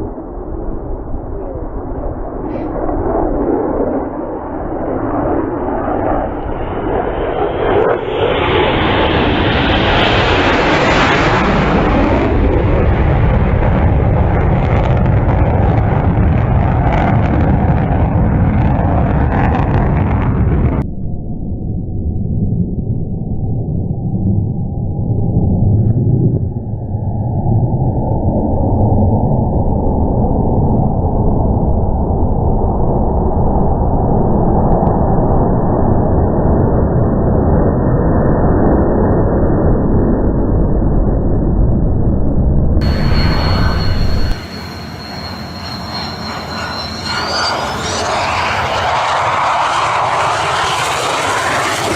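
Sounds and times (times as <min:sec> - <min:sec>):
fighter jet roar: 0:00.0 - 0:20.8, 0:42.8 - 0:51.9
wind buffeting microphone: 0:39.0 - 0:49.8.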